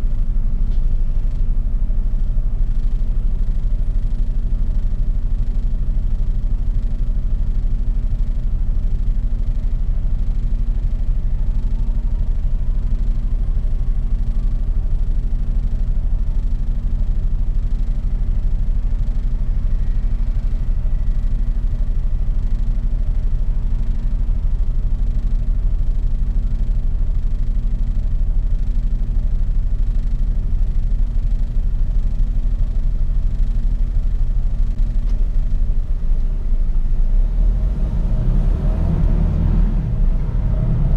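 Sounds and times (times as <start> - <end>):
truck diesel engine drone: 0.0 - 40.9
road rumble: 31.8 - 40.9.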